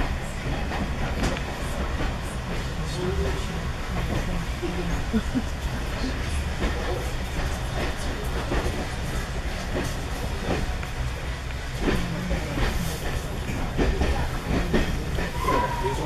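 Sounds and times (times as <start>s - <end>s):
train rumble from inside: 0.0s - 16.0s.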